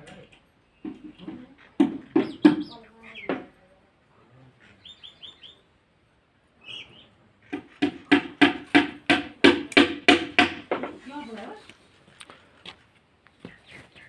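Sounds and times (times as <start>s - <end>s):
sharp knocks or claps: 0.8s - 3.5s, 7.5s - 11.0s.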